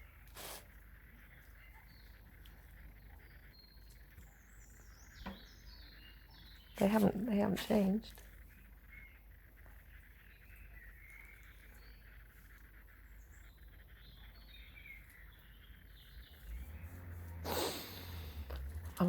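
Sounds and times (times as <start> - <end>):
small birds chirping: 0.0 - 19.0
low rumble: 16.2 - 19.0.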